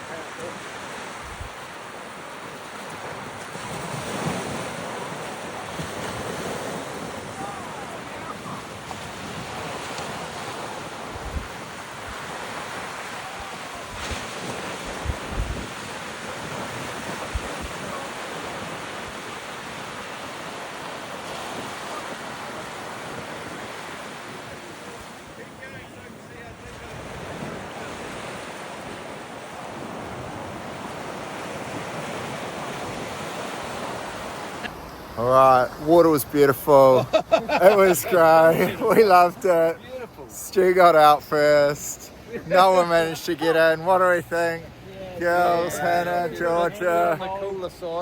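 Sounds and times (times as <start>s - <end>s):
sea surf washing onto beach: 0.0s - 48.0s
wind buffeting microphone: 1.0s - 25.4s.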